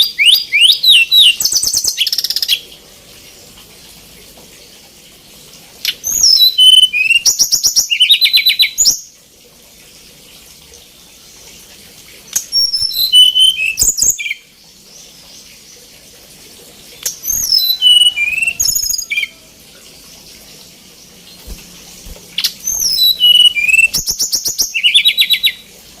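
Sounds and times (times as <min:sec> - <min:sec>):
songbird singing: 0:12.3 - 0:15.8, 0:21.0 - 0:25.7.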